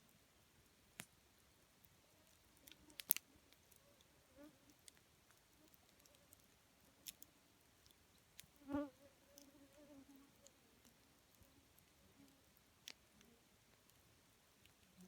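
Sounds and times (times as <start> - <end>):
campfire crackling: 0.0 - 8.7, 10.3 - 15.0.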